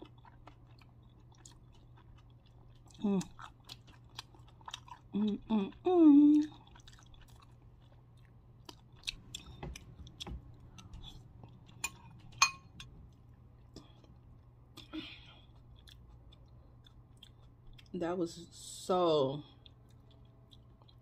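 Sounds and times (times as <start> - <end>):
chewing with mouth clicks: 0.0 - 18.0, 19.5 - 21.0
metal spoon clinking on glass bowl: 11.8 - 12.7.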